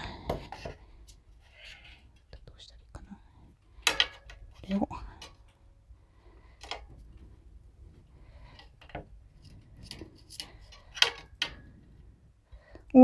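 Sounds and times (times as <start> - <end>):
small parts clicking and tapping: 3.8 - 5.6, 6.6 - 7.2, 8.4 - 11.8.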